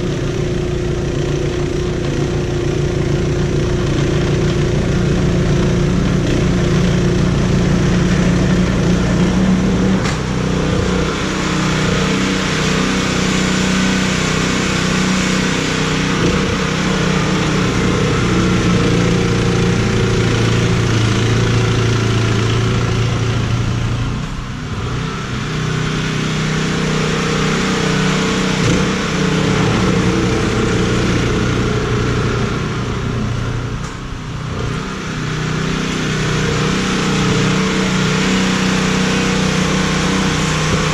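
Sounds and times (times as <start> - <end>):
engine running: 0.0 - 40.9
dense rushing noise: 23.4 - 40.9.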